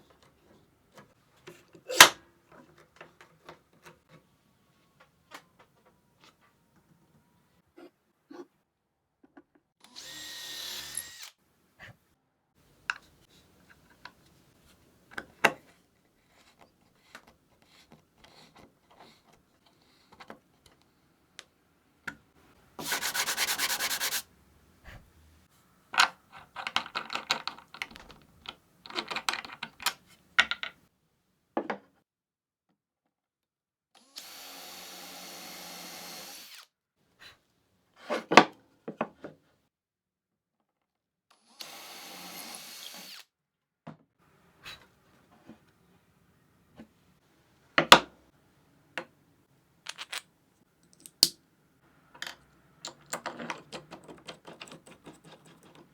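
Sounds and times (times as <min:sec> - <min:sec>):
handheld power tool running: 0:09.9 - 0:11.4
wooden parts and tools clicking: 0:25.9 - 0:30.8, 0:49.9 - 0:51.4, 0:52.1 - 0:55.9.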